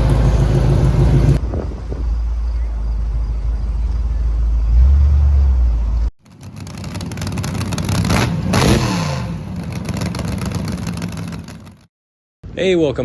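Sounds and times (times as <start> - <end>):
car driving past: 0.0 - 10.2
loud low engine rumble: 0.0 - 11.9.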